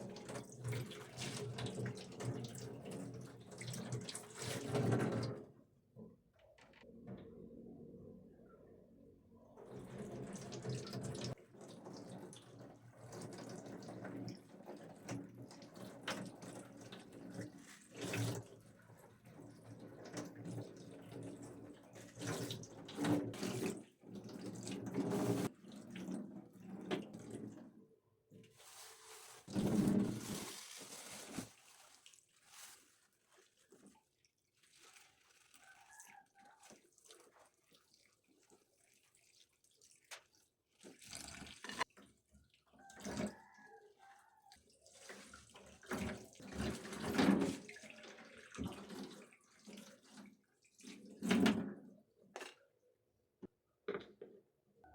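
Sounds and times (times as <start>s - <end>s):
water running from tap into sink: 0.0s - 5.3s, 9.8s - 18.6s, 38.4s - 41.9s.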